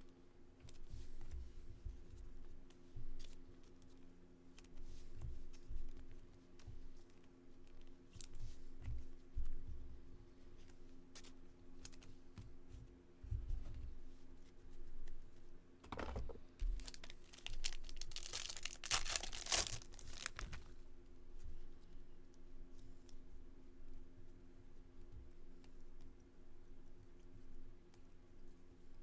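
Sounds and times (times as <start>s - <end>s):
soft handling thumps: 12.3s - 20.8s
wrapper tearing and crinkling: 16.8s - 20.7s.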